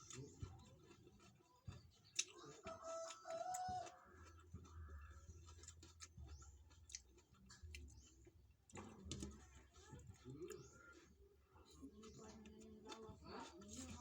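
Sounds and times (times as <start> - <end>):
clicks and clatters of eating: 0.0 - 14.0.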